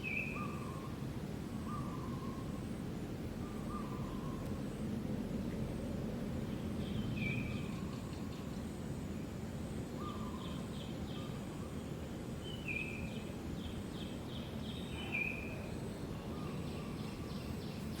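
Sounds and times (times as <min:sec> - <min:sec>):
outdoor background noise: 0:00.0 - 0:18.0
birds chirping: 0:10.0 - 0:18.0.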